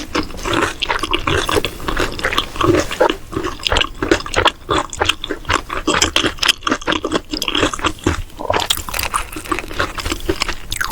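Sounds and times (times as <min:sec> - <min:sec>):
wet smacking chewing: 0:00.0 - 0:10.9.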